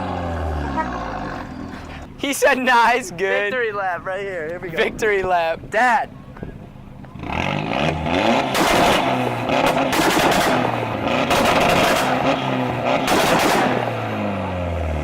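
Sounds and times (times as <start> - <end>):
car engine revving: 0.0 - 2.1, 7.2 - 15.0.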